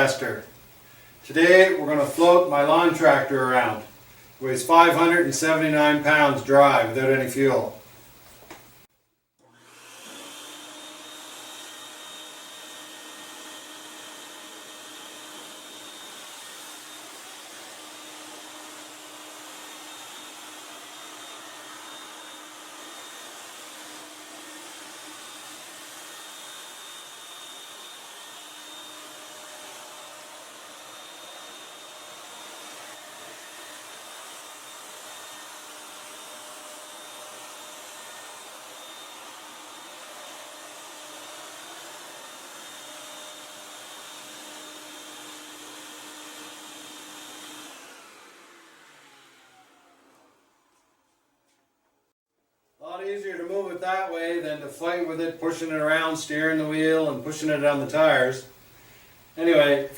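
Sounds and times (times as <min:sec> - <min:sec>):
air blower rushing: 0:09.5 - 0:50.8.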